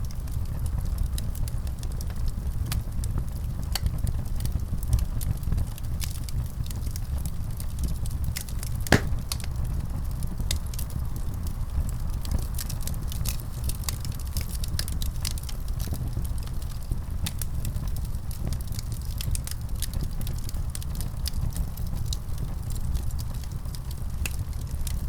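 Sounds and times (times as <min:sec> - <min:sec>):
wood fire crackling: 0:00.1 - 0:25.0
sharp snaps and pops: 0:08.4 - 0:09.5.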